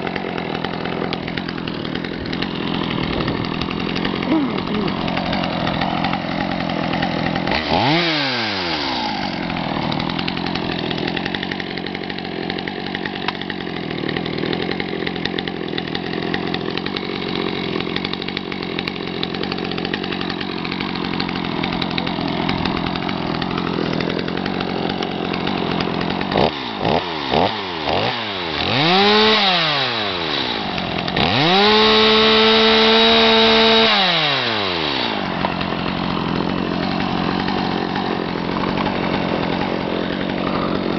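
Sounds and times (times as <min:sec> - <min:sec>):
small two-stroke engine idling and revving: 0:00.0 - 0:40.9.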